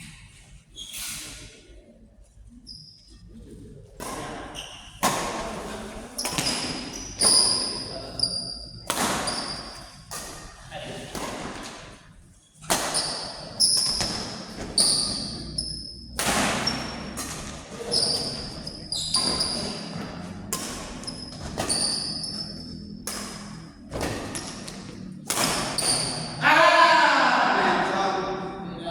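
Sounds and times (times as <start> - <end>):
shoe squeaks: 2.6 - 3.2, 4.5 - 5.0, 6.2 - 10.0, 12.9 - 23.8, 25.7 - 26.4
racket hitting shuttlecock: 4.0 - 7.8, 8.8 - 26.4.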